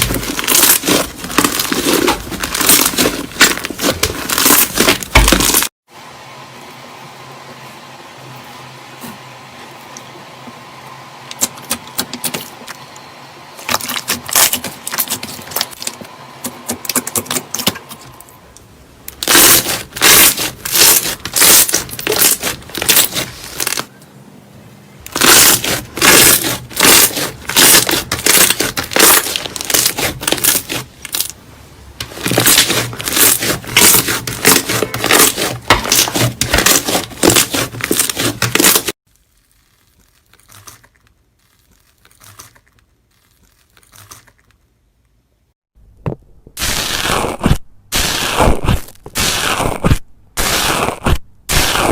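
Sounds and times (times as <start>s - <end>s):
slime crackling and popping: 0.0s - 5.7s, 19.1s - 23.9s, 25.1s - 31.4s, 32.0s - 44.6s, 46.6s - 51.9s.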